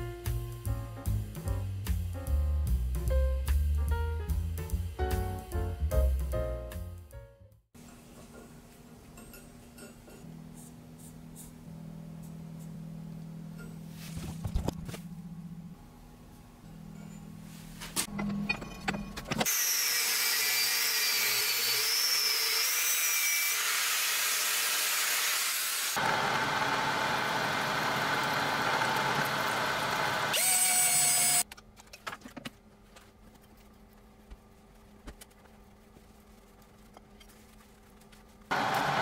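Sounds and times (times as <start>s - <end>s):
power tool running: 19.4s - 31.4s, 38.5s - 39.0s.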